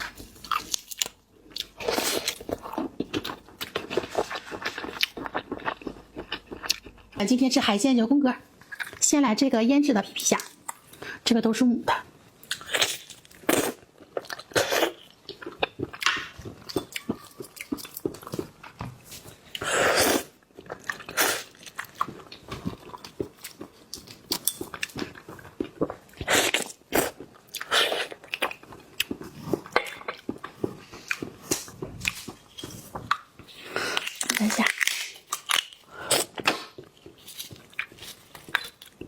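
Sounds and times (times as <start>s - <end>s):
crunching shrimp shells: 33.5s - 39.0s.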